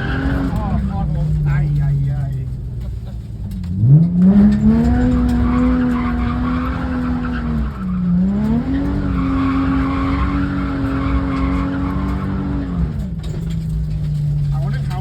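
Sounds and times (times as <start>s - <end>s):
tyres squealing: 0.0s - 1.4s, 4.5s - 13.0s
car engine revving hard: 0.0s - 2.0s, 3.6s - 13.6s.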